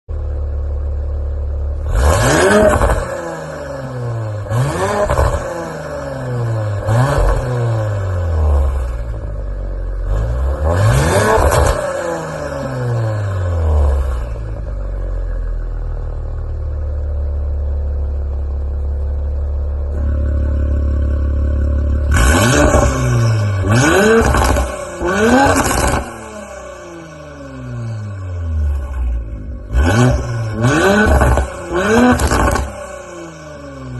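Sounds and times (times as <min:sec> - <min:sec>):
car engine idling: 0:00.1 - 0:02.1, 0:12.1 - 0:33.9
car engine revving: 0:01.7 - 0:15.4, 0:19.7 - 0:33.9.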